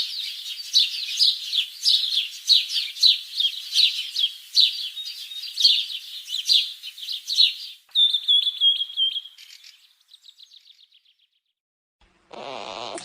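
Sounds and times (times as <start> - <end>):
parrot warbling trill: 12.3 - 13.0.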